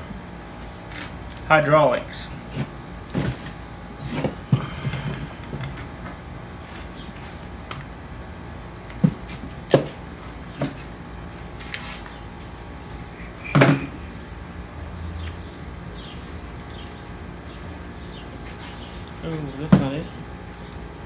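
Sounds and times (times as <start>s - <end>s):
metal tools clinking and knocking: 7.6s - 8.5s, 11.6s - 12.0s.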